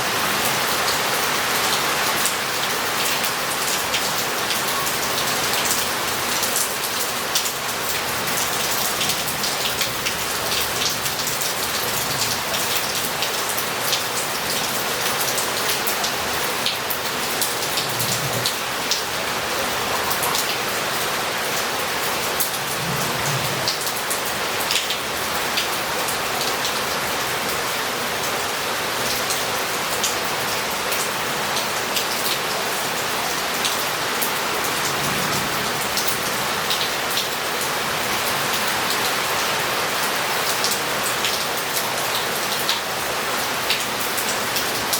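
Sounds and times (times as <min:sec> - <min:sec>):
heavy rain on roof tiles: 0:00.0 - 0:44.9
water running off: 0:16.2 - 0:24.2.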